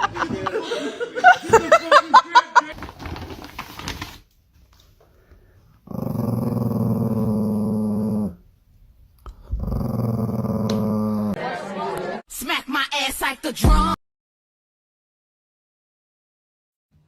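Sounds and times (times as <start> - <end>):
pet growling low: 5.8 - 8.4, 9.3 - 11.4.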